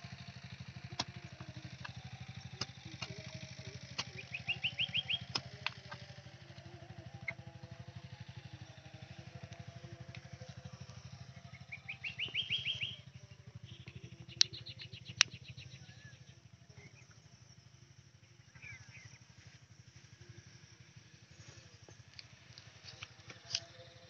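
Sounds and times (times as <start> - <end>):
birds calling: 0.0 - 24.0
low pulsing engine hum: 0.0 - 24.0
sharp clicks: 0.9 - 6.1, 13.8 - 15.6.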